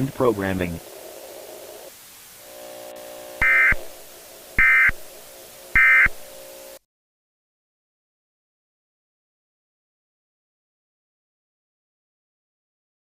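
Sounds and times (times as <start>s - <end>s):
digital data tone bursts: 2.5s - 6.8s.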